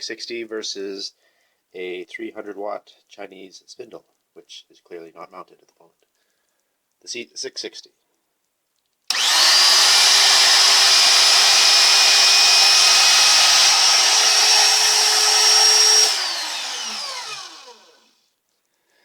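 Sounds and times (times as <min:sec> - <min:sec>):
power tool motor whining: 0:09.1 - 0:18.1.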